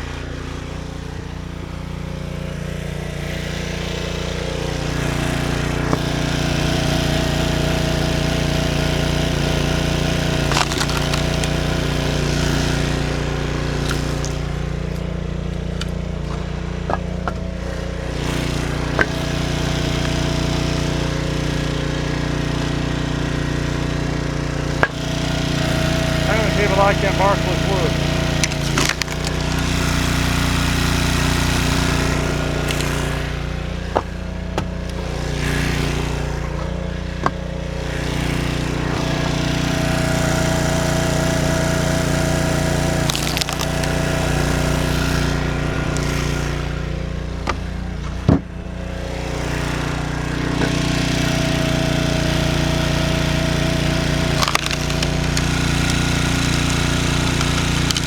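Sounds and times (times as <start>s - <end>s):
log splitter engine running: 0.0s - 58.0s
firewood cracking apart: 9.9s - 12.5s, 26.1s - 36.4s, 42.9s - 46.3s, 53.5s - 58.0s.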